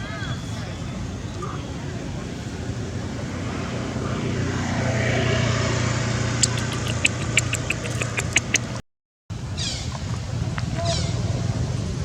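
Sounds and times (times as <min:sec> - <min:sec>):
sharp high chirps: 0:06.4 - 0:08.8.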